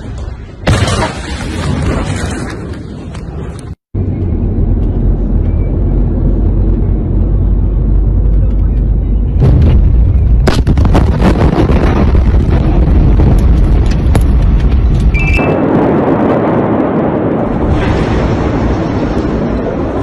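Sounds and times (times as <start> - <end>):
distorted explosion rumble: 0.0 - 8.4, 9.3 - 20.0
sharp crackles and knocks: 10.1 - 15.4.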